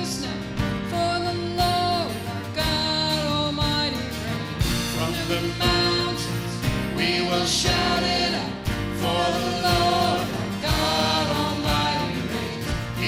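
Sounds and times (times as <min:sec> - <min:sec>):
band playing worship song: 0:00.0 - 0:13.0
voices singing: 0:05.0 - 0:13.0
drum hits: 0:06.6 - 0:13.0.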